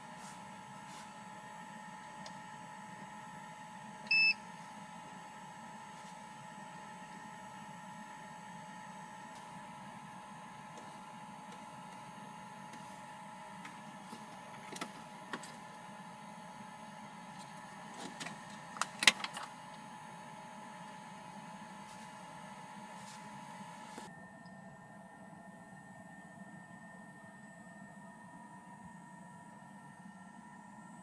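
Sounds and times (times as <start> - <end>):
steady electrical hum: 0.0 - 24.1.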